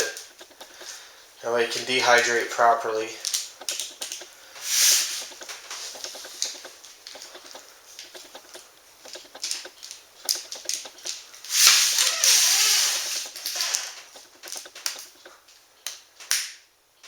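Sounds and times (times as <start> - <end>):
loud noisy burst: 11.6 - 13.9.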